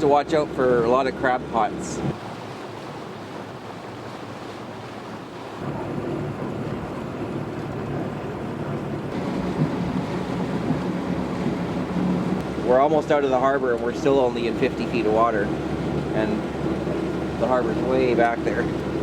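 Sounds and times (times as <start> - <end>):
water rushing along a hull: 0.0 - 19.0
wind on the microphone: 5.4 - 13.3.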